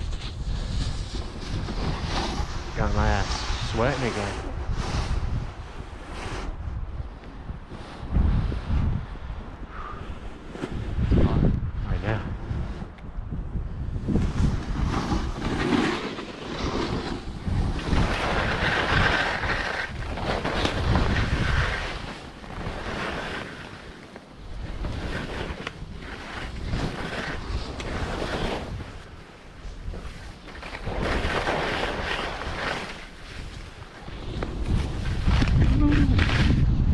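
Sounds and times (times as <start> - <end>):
wind buffeting microphone: 0.0 - 36.9.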